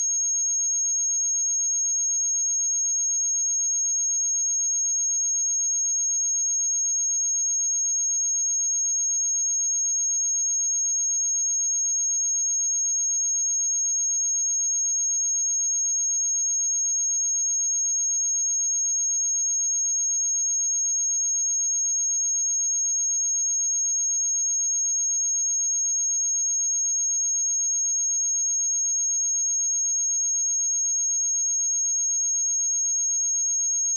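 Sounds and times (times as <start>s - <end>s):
high-pitched sine test tone: 22.5s - 33.9s.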